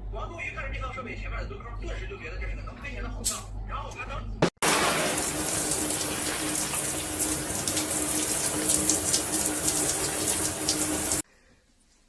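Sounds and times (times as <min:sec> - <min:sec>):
running water rushing: 0:04.6 - 0:11.2.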